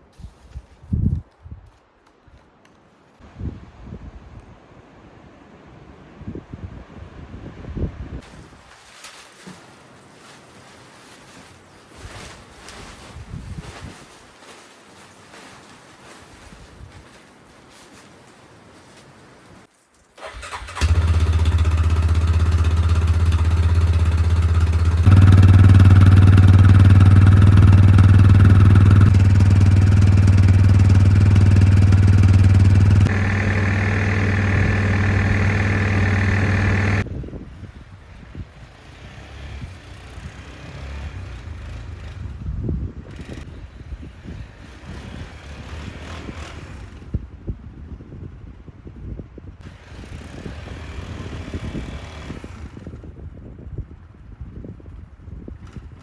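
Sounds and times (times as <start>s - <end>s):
snowmobile engine running: 20.4s - 37.1s.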